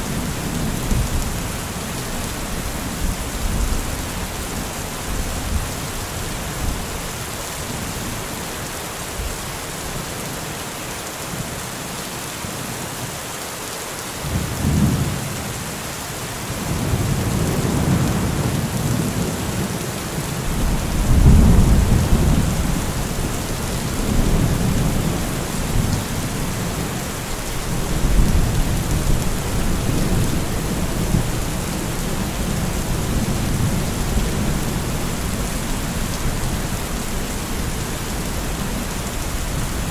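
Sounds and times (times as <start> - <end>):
heavy rain falling: 0.0 - 39.9
thunder rumbling: 20.4 - 26.6.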